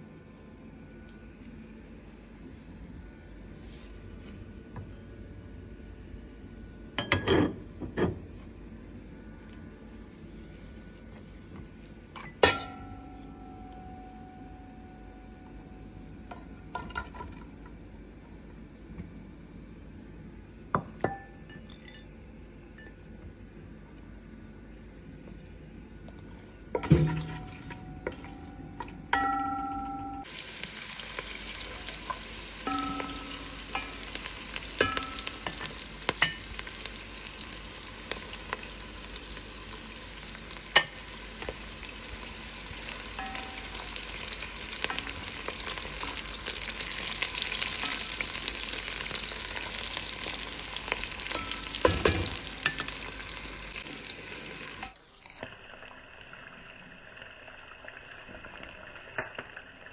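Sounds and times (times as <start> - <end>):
food sizzling in hot oil: 30.2 - 55.3.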